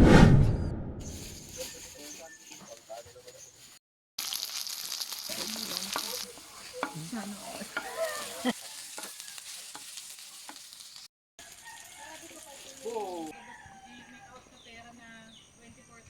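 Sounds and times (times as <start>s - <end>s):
steady sizzling hiss: 4.2s - 13.3s.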